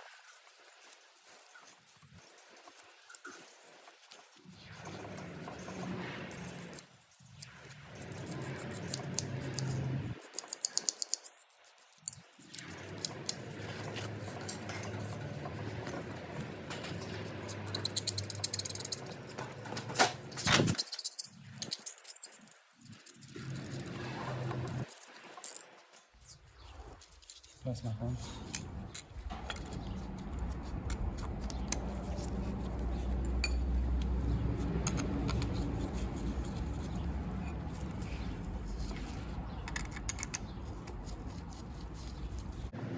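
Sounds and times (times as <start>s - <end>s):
scraping on metal: 4.5s - 24.9s
low steady rumble: 28.4s - 42.9s.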